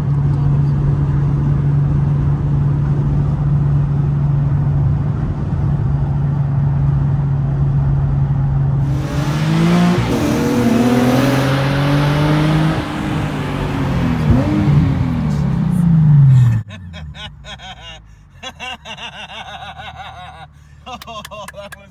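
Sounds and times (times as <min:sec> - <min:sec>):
car engine revving: 0:08.7 - 0:17.9.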